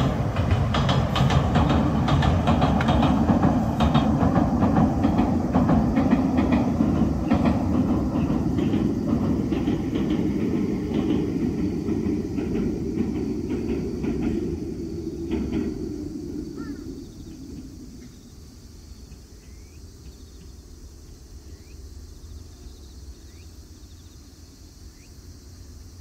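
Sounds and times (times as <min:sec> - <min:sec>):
train wheel clicks: 0:00.0 - 0:21.4
train rumbling on a steel bridge: 0:00.0 - 0:26.0
bird chirping: 0:21.4 - 0:24.3.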